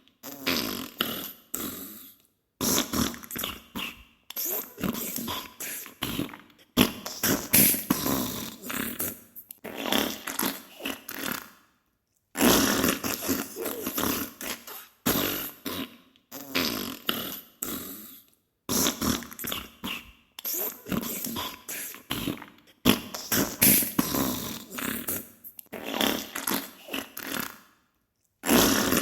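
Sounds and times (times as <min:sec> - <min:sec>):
wet fart bursts: 0:02.6 - 0:05.2, 0:06.0 - 0:11.5, 0:12.4 - 0:17.2, 0:18.7 - 0:21.2, 0:22.1 - 0:27.6, 0:28.4 - 0:29.0.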